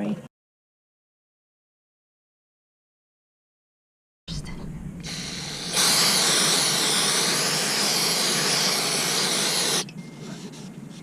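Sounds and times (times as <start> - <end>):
loud steady hiss: 5.0 - 9.9.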